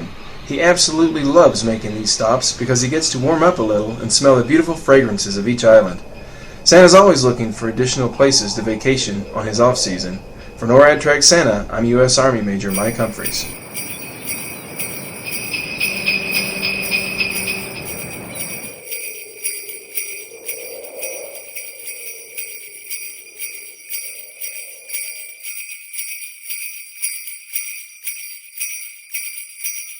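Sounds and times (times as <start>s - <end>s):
faint wavering tone: 12.7s - 26.3s
sleigh bells jingling: 12.7s - 29.9s.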